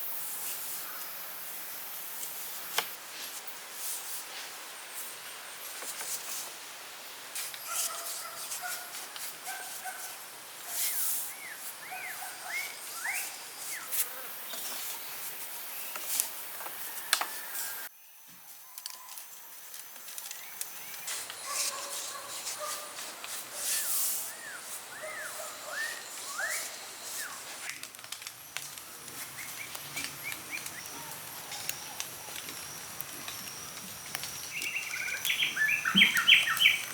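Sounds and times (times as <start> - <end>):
scattered clicks and scratchy noises: 27.6 - 36.9.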